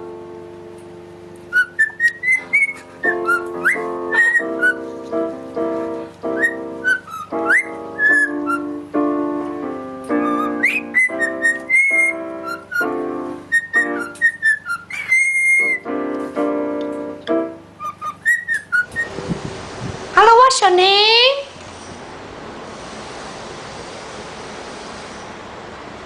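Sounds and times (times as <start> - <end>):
sustained melody notes: 0.0 - 18.9
bird whistling high notes: 1.5 - 4.9, 6.3 - 8.8, 10.2 - 15.9, 17.8 - 19.1.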